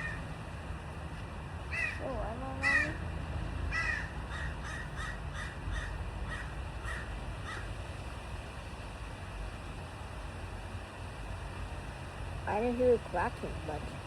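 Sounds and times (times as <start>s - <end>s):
bird giving harsh calls: 1.7s - 2.0s, 2.6s - 3.0s, 3.7s - 7.7s.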